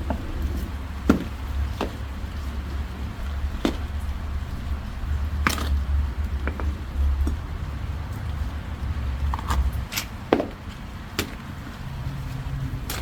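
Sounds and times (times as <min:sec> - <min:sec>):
steady low rumble: 0:00.0 - 0:13.0
sharp knocks and clunks: 0:01.1 - 0:02.1, 0:03.5 - 0:04.3, 0:05.4 - 0:07.4, 0:09.2 - 0:11.5.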